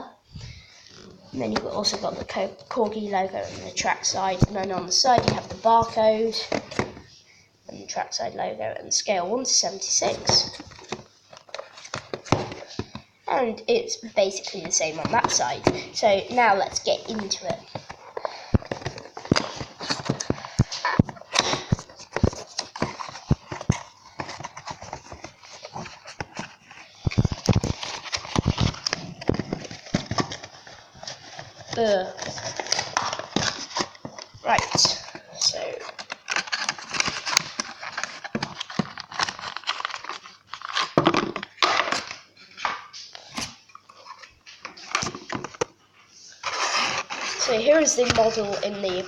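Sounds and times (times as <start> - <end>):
packaging rustling: 10.0 - 13.1, 14.4 - 49.0
packaging clicks and knocks: 17.0 - 42.8.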